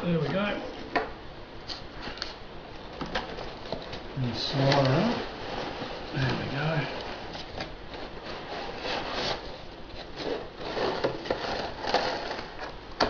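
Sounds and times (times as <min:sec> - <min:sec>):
cardboard scraping and rustling: 0:03.1 - 0:12.8.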